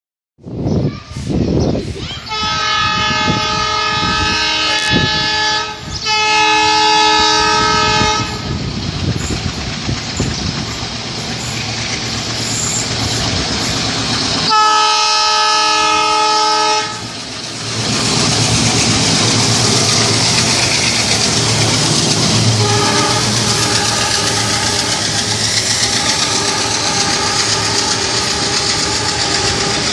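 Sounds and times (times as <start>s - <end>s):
train running on track: 0.4s - 29.9s
train horn blasts: 2.3s - 8.6s, 14.4s - 17.2s, 21.3s - 29.9s.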